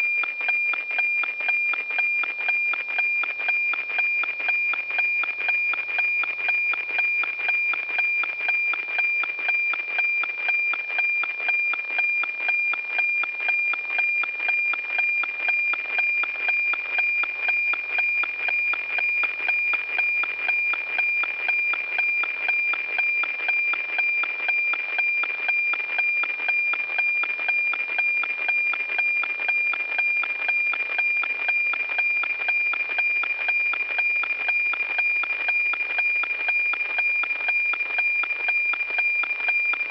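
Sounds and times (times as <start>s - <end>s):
regular radio ticking: 0.0s - 39.9s.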